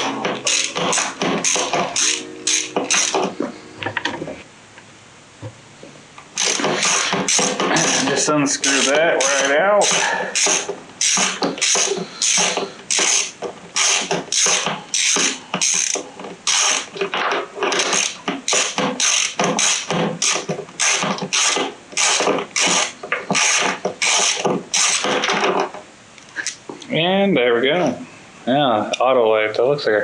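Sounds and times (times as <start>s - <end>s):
ratchet wrench clicking: 0.5s - 3.1s, 8.6s - 16.8s.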